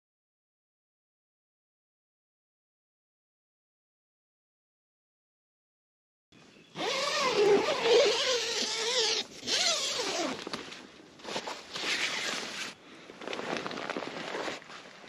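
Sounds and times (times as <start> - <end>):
zipper pulled open: 6.8 - 12.8.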